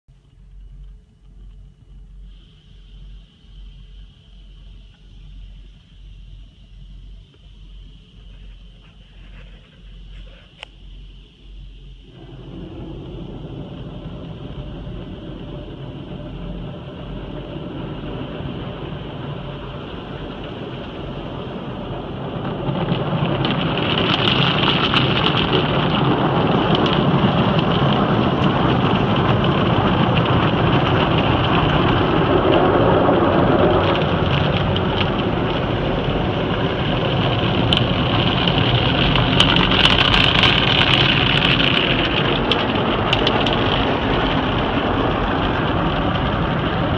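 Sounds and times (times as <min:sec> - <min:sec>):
low hum: 0:00.1 - 0:46.9
water spraying onto a car: 0:11.6 - 0:46.9.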